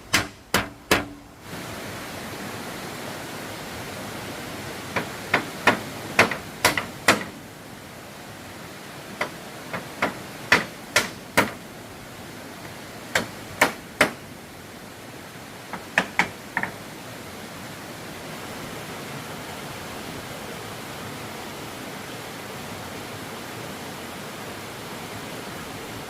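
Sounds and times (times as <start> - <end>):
hammer blows on wood: 0.0 - 1.3, 5.0 - 7.4, 9.2 - 11.6, 13.1 - 14.3
steady hiss: 0.0 - 26.0.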